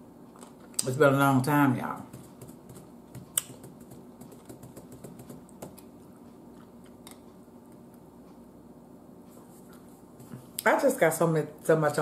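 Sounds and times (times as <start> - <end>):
person chewing food: 5.5 - 7.4.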